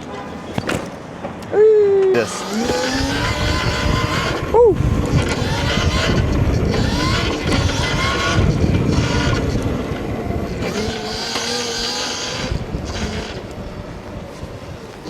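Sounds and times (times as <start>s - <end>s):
electric motor whining: 2.2s - 14.4s
wind buffeting microphone: 2.4s - 15.0s.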